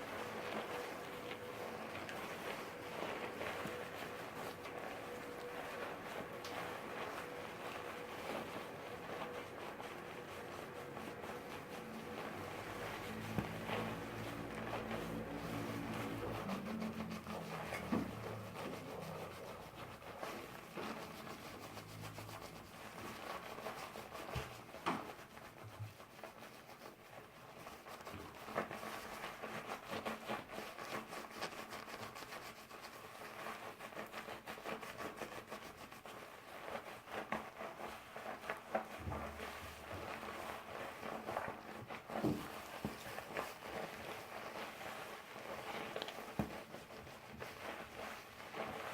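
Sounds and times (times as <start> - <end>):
hands rubbing doll's hair: 0.0 - 48.9.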